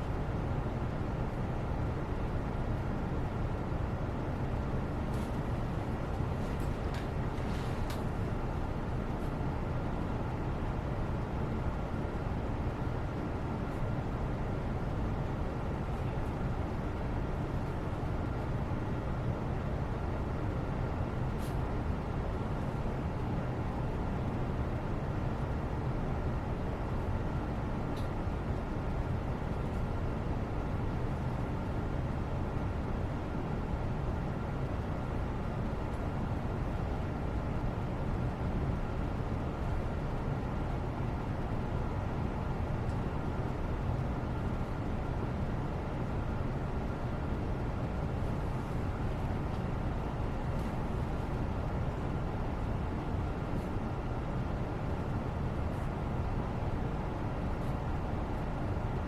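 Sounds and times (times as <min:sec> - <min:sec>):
faint hum: 0:00.0 - 0:59.0
low rumbling background noise: 0:00.0 - 0:59.0
steady low background noise: 0:00.0 - 0:59.0.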